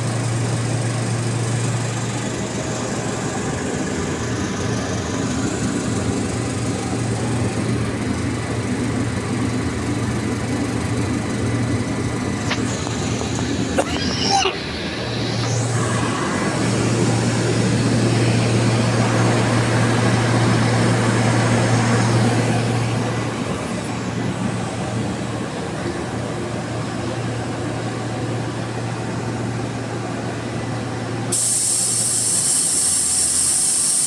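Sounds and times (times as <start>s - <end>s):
air compressor running: 0.0s - 26.8s, 31.2s - 34.0s
loud air hiss: 12.4s - 17.4s, 31.3s - 34.0s.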